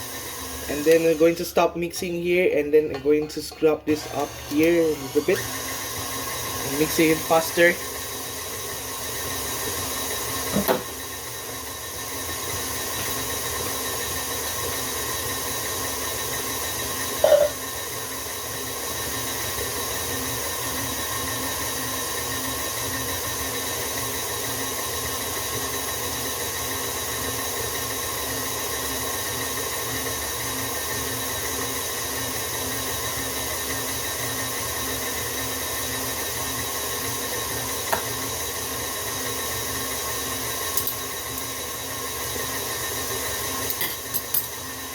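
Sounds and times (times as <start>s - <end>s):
electric mixer running: 0.0s - 44.9s.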